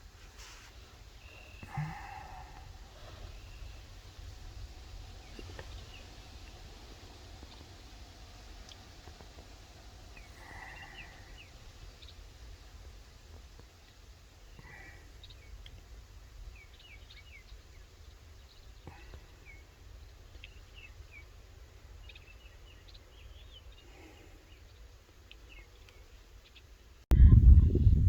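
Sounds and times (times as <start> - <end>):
small birds chirping: 0.0 - 27.0
faint low rumble: 27.1 - 28.0
sudden loud low rumble: 27.1 - 28.0.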